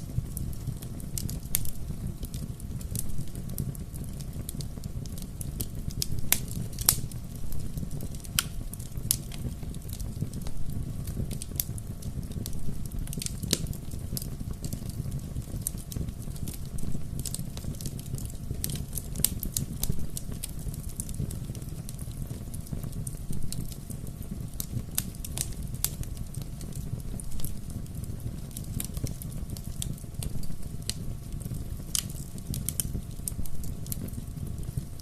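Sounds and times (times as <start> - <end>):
low rumble of flames: 0.0 - 35.0
wood fire crackling: 0.0 - 35.0
sharp pops and snaps: 31.9 - 34.1.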